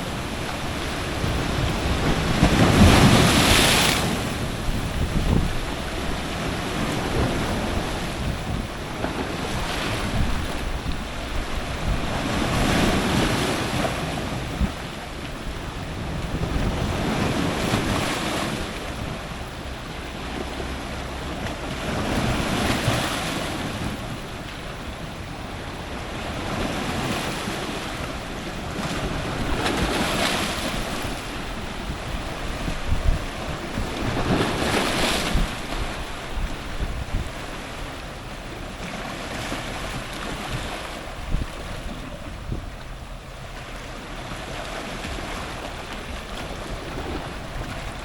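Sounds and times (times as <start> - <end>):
ocean surf crashing on rocks: 0.0 - 48.0.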